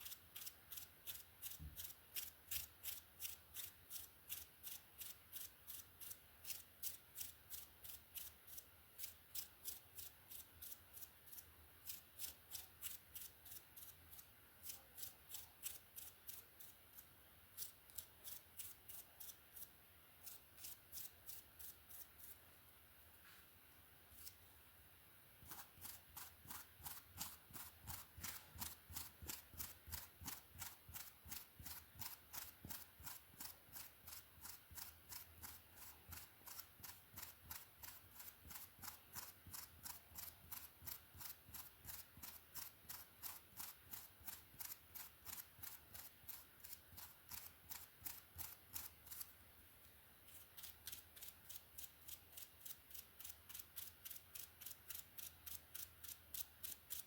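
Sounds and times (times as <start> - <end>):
hairbrush stroking through hair: 24.1 - 24.5, 25.4 - 49.4.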